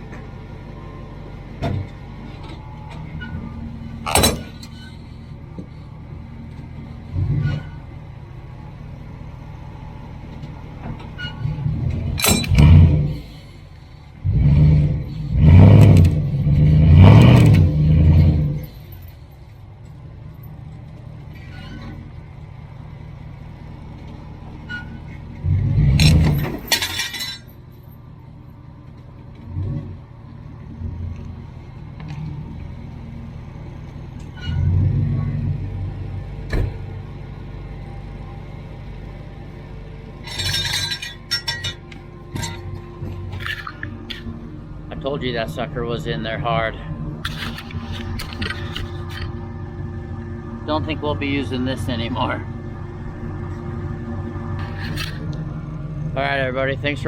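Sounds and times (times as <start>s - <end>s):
pickup truck engine revving: 3.0s - 19.0s, 20.0s - 26.8s, 29.3s - 38.1s, 38.7s - 57.0s
sharp metal clanks: 4.0s - 5.0s, 12.1s - 13.4s, 26.0s - 27.7s, 40.2s - 44.3s.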